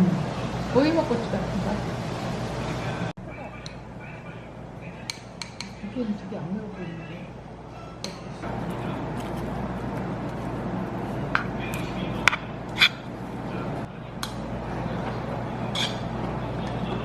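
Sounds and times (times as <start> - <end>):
background chatter: 0.0 - 17.0
cutlery clinking on dishes: 15.7 - 16.1.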